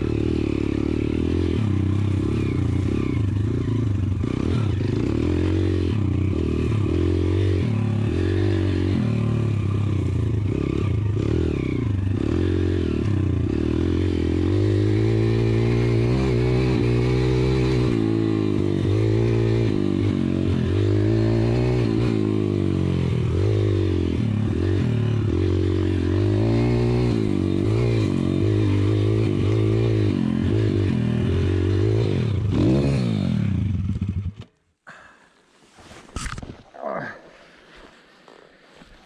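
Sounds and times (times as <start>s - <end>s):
pit bike engine running: 0.0s - 34.4s
faint scrapes and clicks: 35.6s - 36.7s.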